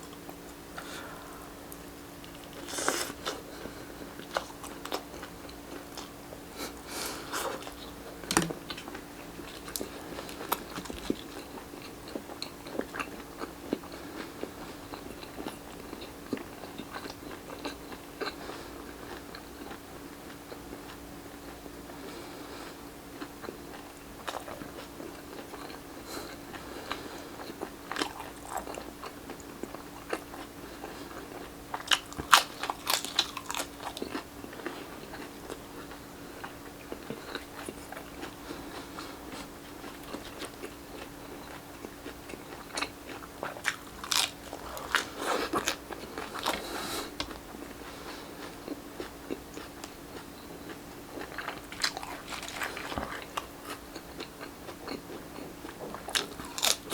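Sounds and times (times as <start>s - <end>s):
faint steady hum: 0.0s - 56.9s
crunchy bites and chewing: 7.5s - 18.4s, 23.2s - 47.7s, 48.4s - 56.9s.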